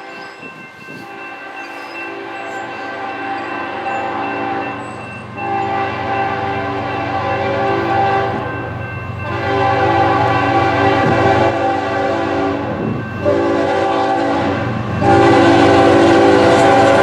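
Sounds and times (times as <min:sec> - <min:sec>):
train rumbling past: 0:00.0 - 0:17.0
locomotive air horn blasts: 0:05.4 - 0:08.5, 0:09.2 - 0:17.0.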